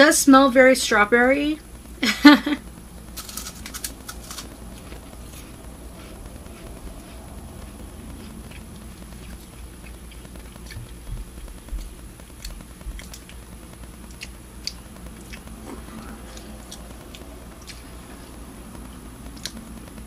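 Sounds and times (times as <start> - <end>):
person chewing crisp wafer: 3.1 - 19.6.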